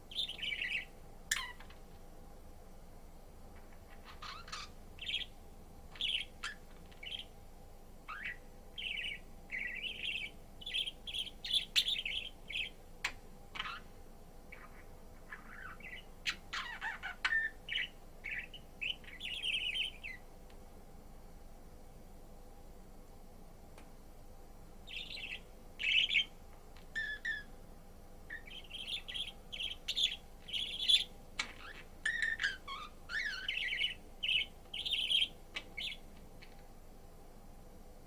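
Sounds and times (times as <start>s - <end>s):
budgerigar chirping and warbling: 0.1s - 1.8s, 3.9s - 5.3s, 6.0s - 7.3s, 8.1s - 12.7s, 13.6s - 13.8s, 14.5s - 20.2s, 24.9s - 26.3s, 27.0s - 27.5s, 28.3s - 36.0s.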